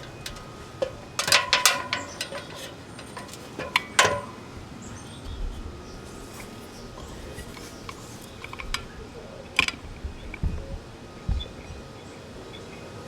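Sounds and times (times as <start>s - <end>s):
metal ladder clanking: 0.0s - 4.6s.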